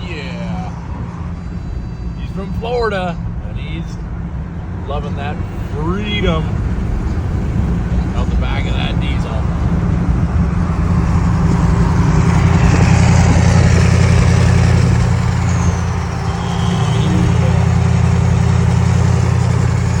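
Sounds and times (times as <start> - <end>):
diesel engine loud drone: 0.0 - 20.0.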